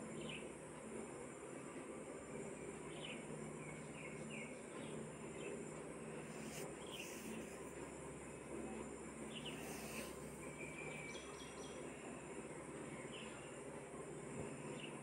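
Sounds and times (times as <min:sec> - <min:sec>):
bird chirping faintly: 0:02.5 - 0:07.7.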